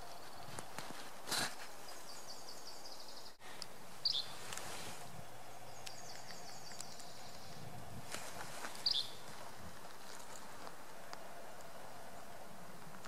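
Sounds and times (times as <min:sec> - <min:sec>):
bird trilling: 0:04.0 - 0:04.4, 0:08.8 - 0:09.2.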